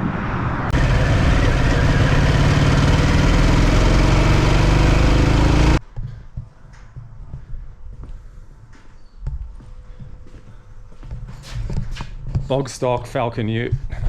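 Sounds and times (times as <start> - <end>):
motorcycle engine rumble: 0.7 - 5.8.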